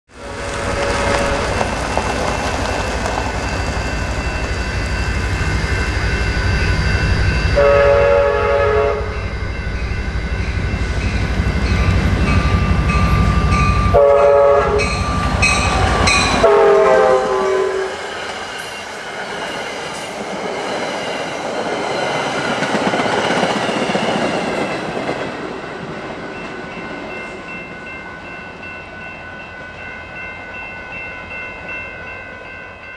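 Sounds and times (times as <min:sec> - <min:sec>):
train horn blasts: 0:00.1 - 0:01.7, 0:07.4 - 0:09.4, 0:12.6 - 0:18.1
passenger train rumbling: 0:00.1 - 0:32.9.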